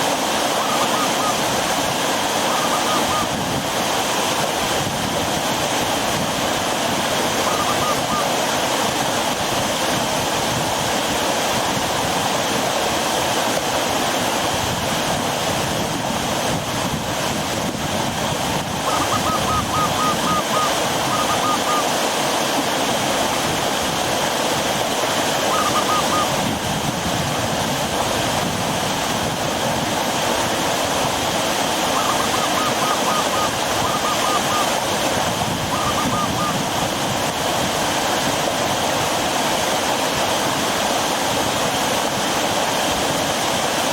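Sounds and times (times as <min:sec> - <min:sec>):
river water rushing: 0:00.0 - 0:43.9
bird calling: 0:00.5 - 0:01.5, 0:02.4 - 0:03.4, 0:07.4 - 0:08.4, 0:18.8 - 0:22.0, 0:25.4 - 0:26.5, 0:31.8 - 0:34.8, 0:35.5 - 0:36.7.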